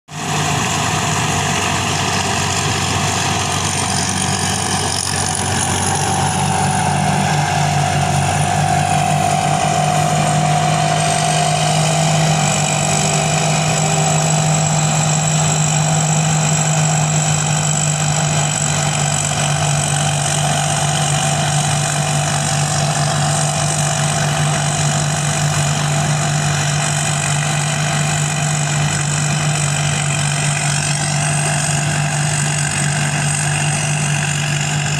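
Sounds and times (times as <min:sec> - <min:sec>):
combine harvester engine running: 0:00.1 - 0:34.9
thin high whine: 0:00.9 - 0:15.6.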